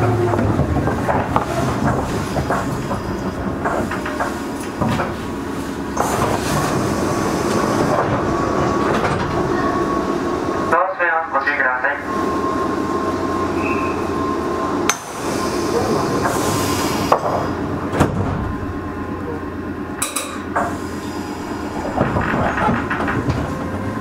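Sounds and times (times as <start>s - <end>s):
wheels clunking over rail joints: 0.0s - 10.6s, 14.8s - 24.0s
train wheels rumbling: 0.0s - 24.0s.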